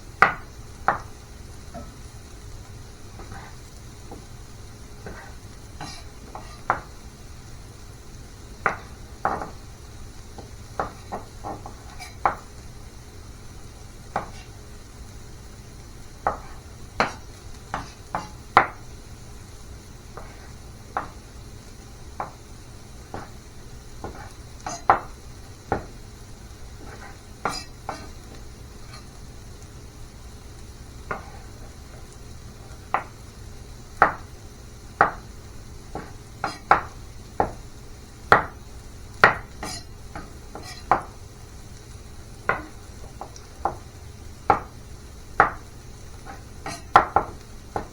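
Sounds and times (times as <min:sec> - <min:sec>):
faint sizzle: 0:00.0 - 0:47.9
utensil scraping a pan: 0:03.2 - 0:03.6, 0:05.0 - 0:06.7, 0:10.8 - 0:12.2, 0:14.2 - 0:14.6, 0:20.2 - 0:20.6, 0:24.0 - 0:24.9, 0:26.8 - 0:28.2, 0:28.8 - 0:29.2, 0:31.1 - 0:31.8, 0:39.6 - 0:41.0, 0:46.3 - 0:46.9.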